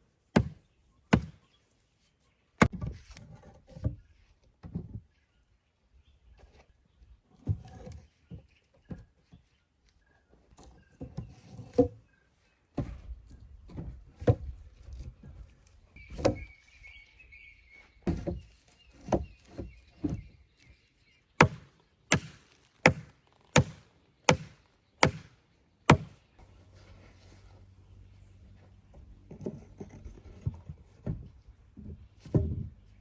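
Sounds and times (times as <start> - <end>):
wood chopping with a blade: 0.3 - 1.4, 2.6 - 4.0, 18.1 - 20.3, 21.4 - 26.2.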